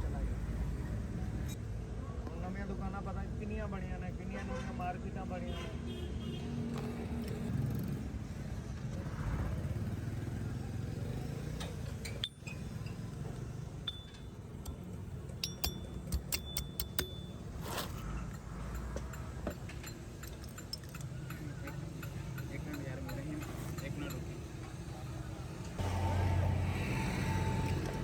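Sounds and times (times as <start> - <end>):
metallic clinks: 12.0 - 17.6.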